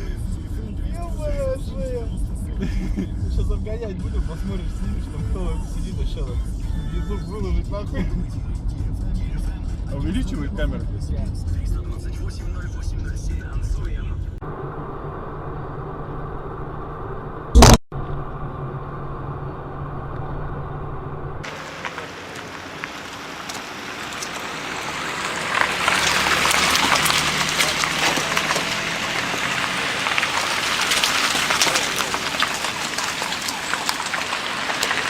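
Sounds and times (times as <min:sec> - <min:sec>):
loud bang: 0:17.5 - 0:20.4
crackling hiss of road noise: 0:21.5 - 0:35.0.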